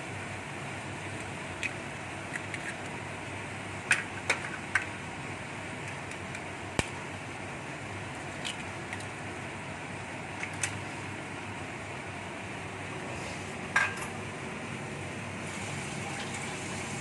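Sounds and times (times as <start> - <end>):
wok hissing over flame: 15.4 - 17.0.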